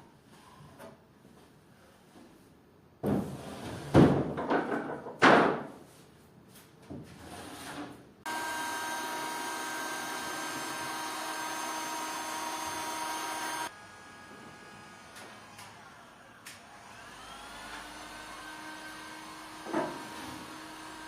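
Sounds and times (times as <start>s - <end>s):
wood and tools knocking: 3.9s - 5.8s, 19.4s - 20.6s
power tool motor whining: 8.3s - 21.0s.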